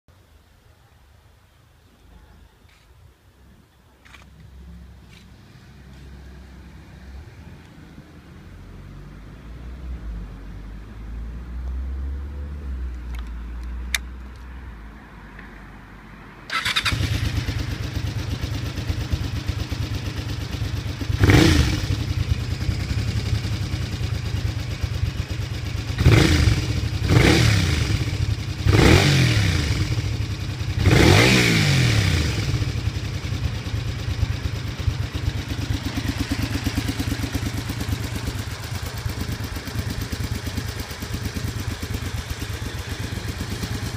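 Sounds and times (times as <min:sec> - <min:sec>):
click: 0:12.9 - 0:14.5
motorcycle engine starting and idling: 0:16.4 - 0:43.9
engine revving: 0:16.5 - 0:18.1, 0:21.0 - 0:23.8, 0:25.9 - 0:33.3.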